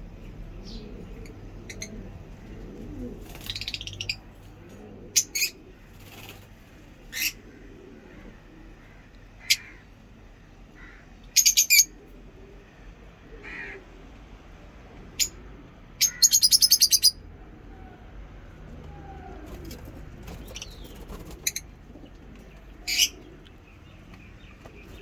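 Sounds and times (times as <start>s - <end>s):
lovebirds chirping: 0.2s - 2.1s, 3.2s - 4.3s, 11.4s - 11.9s, 16.0s - 17.2s, 19.2s - 25.0s.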